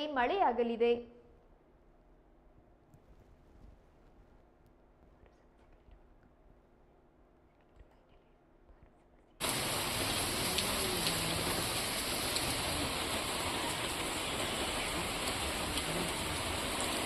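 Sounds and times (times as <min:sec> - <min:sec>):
heavy rain falling: 0:09.4 - 0:17.0.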